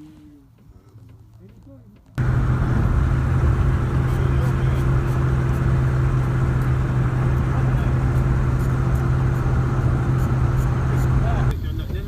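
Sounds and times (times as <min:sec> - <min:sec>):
road rumble: 0:02.1 - 0:12.0
truck engine hum: 0:02.2 - 0:11.8.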